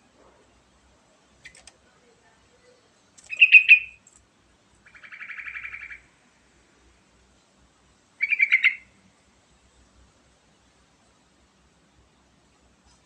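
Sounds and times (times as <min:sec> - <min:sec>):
faint clicks: 0:01.4 - 0:01.8, 0:03.1 - 0:03.4, 0:04.0 - 0:04.3
bird chirping and trilling: 0:03.3 - 0:04.0, 0:04.8 - 0:06.1, 0:08.2 - 0:09.0.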